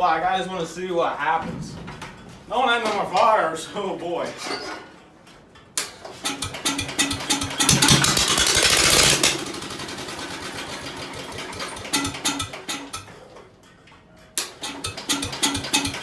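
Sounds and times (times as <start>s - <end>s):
starter motor cranking: 6.0s - 13.1s, 14.4s - 16.0s
car engine running and sputtering: 6.4s - 12.7s.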